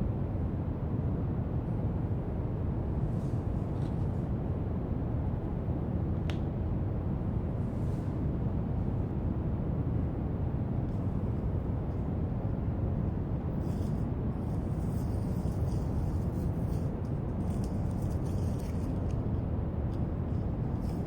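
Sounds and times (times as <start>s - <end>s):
steady brown noise: 0.0s - 21.0s
marker scratching on paper: 13.6s - 19.1s.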